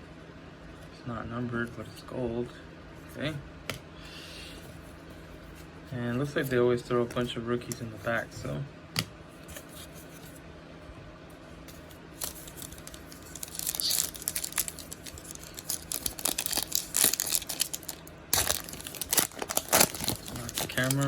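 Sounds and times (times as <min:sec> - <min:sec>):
wrapper tearing and crinkling: 0:12.2 - 0:21.0.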